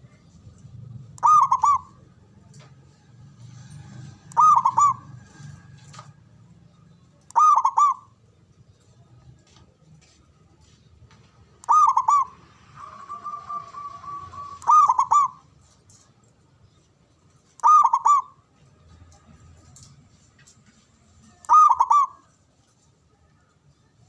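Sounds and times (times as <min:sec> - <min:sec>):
bird trill: 0:01.1 - 0:02.1, 0:04.1 - 0:05.5, 0:07.2 - 0:08.2, 0:11.6 - 0:15.5, 0:17.5 - 0:18.4, 0:21.4 - 0:22.3
dove cooing: 0:01.1 - 0:02.2, 0:04.1 - 0:05.7, 0:07.3 - 0:08.2, 0:11.6 - 0:15.6, 0:17.6 - 0:18.4, 0:21.3 - 0:22.3.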